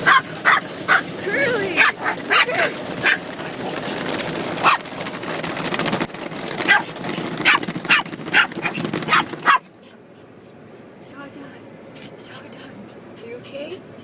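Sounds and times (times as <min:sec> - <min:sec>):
puppy barking and yipping: 0:00.0 - 0:03.4, 0:04.6 - 0:05.0, 0:06.6 - 0:09.7
steady background noise: 0:00.0 - 0:14.0.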